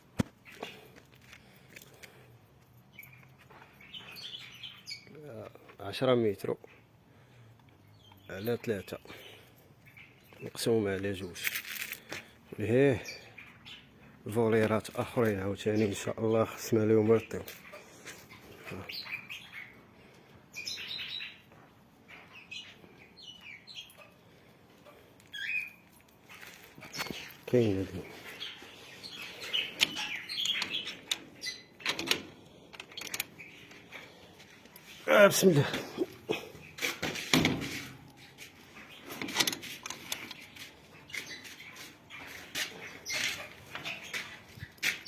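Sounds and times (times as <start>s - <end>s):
cockatiels chirping and calling: 20.5s - 21.5s, 25.3s - 31.8s.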